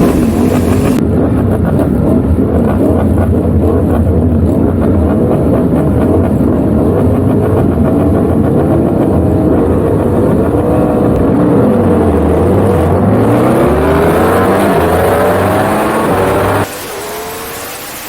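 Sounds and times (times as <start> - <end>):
superbike engine revving: 0.0 - 1.0, 7.5 - 18.0.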